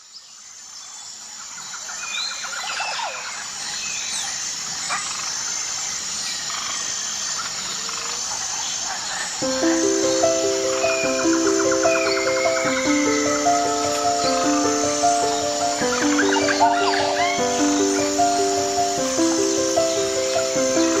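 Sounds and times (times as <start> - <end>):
insects trilling: 0.4 - 21.0
bird calls and chirps: 8.6 - 21.0
music: 9.4 - 21.0.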